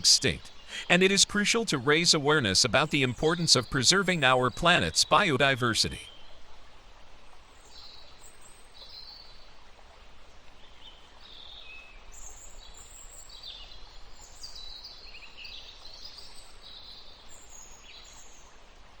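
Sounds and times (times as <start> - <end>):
steady background hiss: 0.0 - 6.1.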